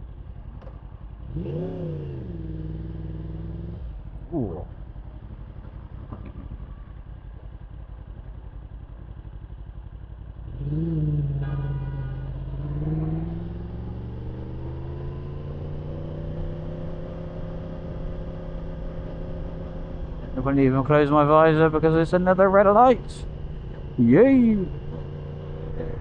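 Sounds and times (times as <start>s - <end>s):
motorcycle engine idling: 0.0s - 26.0s
motorcycle pulling away: 1.2s - 4.0s, 10.3s - 26.0s.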